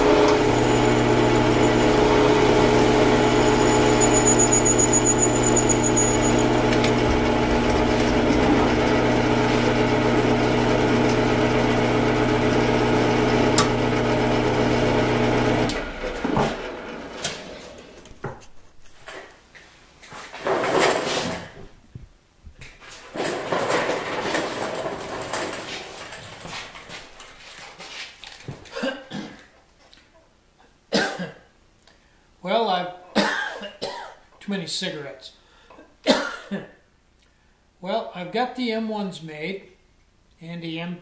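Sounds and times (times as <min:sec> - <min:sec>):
power tool motor running: 0:00.0 - 0:17.1.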